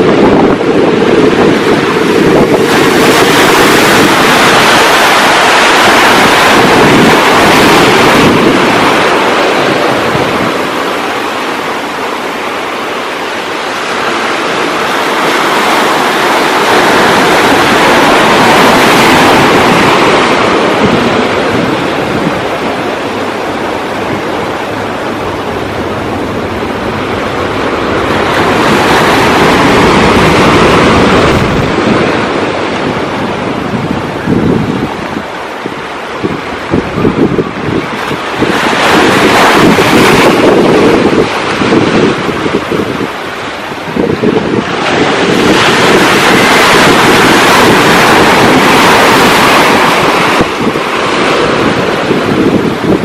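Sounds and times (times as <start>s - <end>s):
ocean waves washing: 0.0s - 53.0s
wind: 0.0s - 53.0s.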